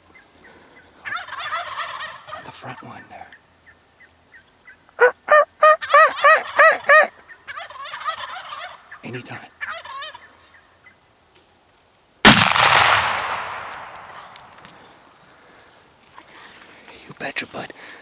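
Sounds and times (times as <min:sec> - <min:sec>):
turkeys gobbling: 0:00.1 - 0:11.0, 0:12.2 - 0:15.0
loud gunshot with echo: 0:12.3 - 0:14.8.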